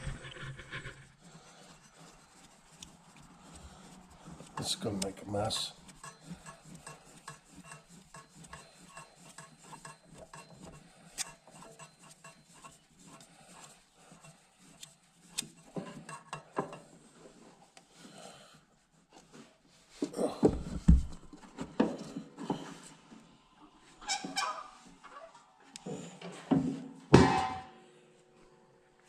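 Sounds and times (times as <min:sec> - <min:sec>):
oil filter rubbing and clicking: 0:00.0 - 0:17.9.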